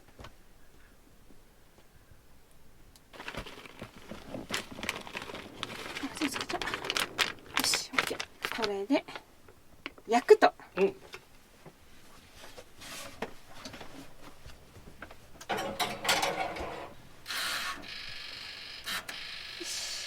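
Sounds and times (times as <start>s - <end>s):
food and utensils rustling: 3.1s - 10.2s, 10.8s - 17.9s
steady hiss: 16.7s - 20.0s.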